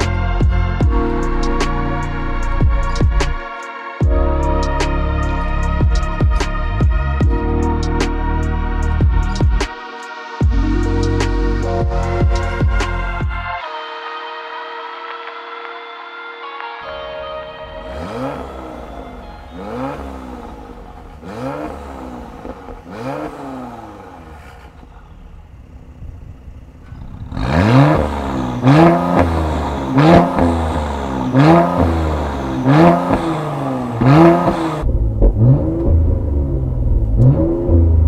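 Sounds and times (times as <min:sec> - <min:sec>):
low engine rumble: 0:16.9 - 0:38.0
car engine revving in blips: 0:17.6 - 0:38.0.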